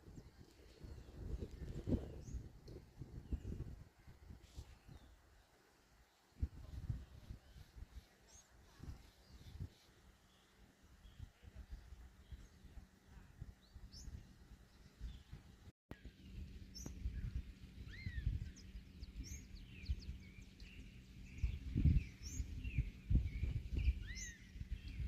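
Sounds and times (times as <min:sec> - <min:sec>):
wind rumble on microphone: 0:00.0 - 0:05.3, 0:06.4 - 0:10.1, 0:10.8 - 0:25.0
birds chirping and calling: 0:16.2 - 0:25.0.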